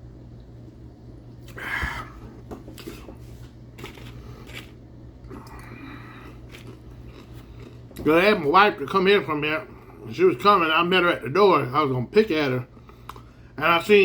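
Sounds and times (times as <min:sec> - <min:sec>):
steady low hum: 0:00.0 - 0:14.0
rustling and handling noise: 0:01.4 - 0:04.8.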